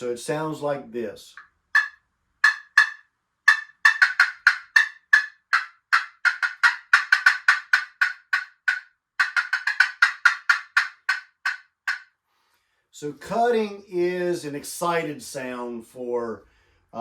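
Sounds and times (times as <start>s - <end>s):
turkey call clucks: 1.8s - 12.1s.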